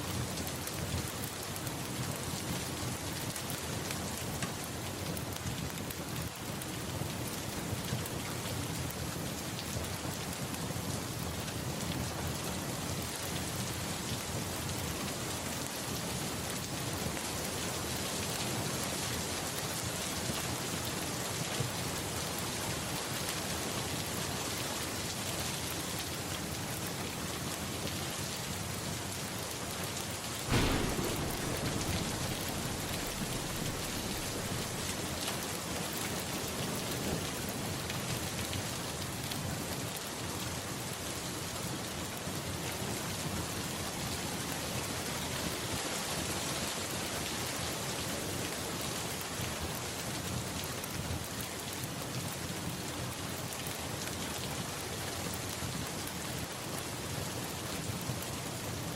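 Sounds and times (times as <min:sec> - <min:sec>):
steady rain falling: 0:00.0 - 0:58.9
thunderclap with low rumble: 0:30.5 - 0:36.8.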